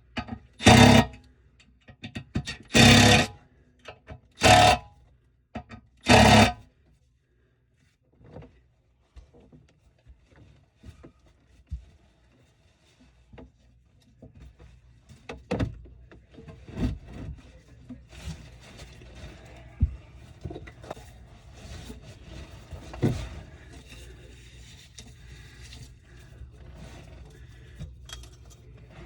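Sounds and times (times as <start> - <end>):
loud rasping strokes: 0.6 - 1.2, 2.6 - 3.4, 4.4 - 4.8, 6.0 - 6.6.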